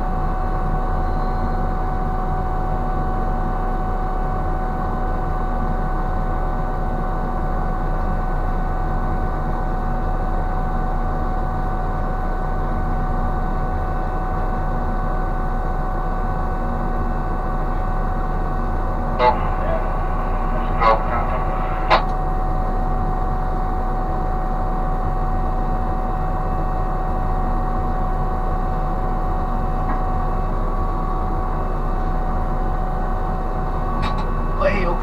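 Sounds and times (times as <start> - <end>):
ship machinery droning: 17.3 - 24.6.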